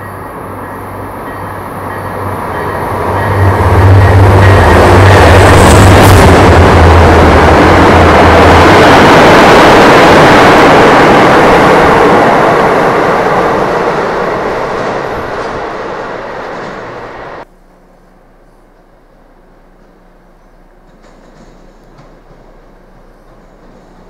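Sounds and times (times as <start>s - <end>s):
train passing rumble: 0.0s - 24.0s.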